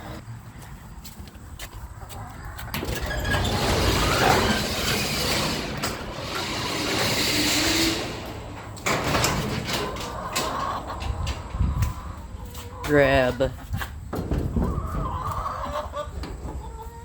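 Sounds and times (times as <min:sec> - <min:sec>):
overhead door rattling scrape: 0:02.7 - 0:13.2.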